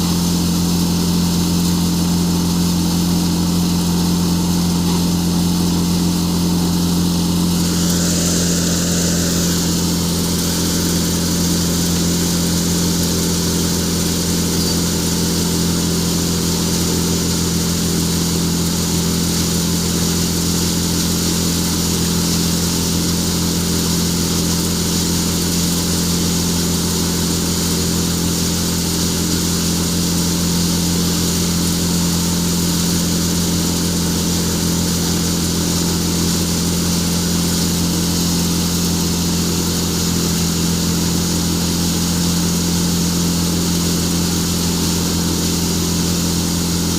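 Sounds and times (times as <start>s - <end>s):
tractor and thresher humming: 0.0s - 46.9s
higher hiss: 2.7s - 14.4s.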